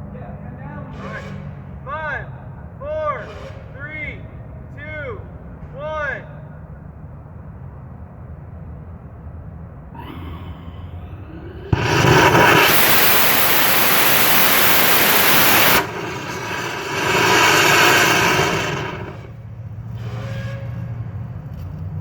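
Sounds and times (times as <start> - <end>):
rocket motor roaring: 10.0 - 19.4
quieter rushing noise: 11.3 - 19.3
rocket motor ignition bang: 11.7 - 19.4.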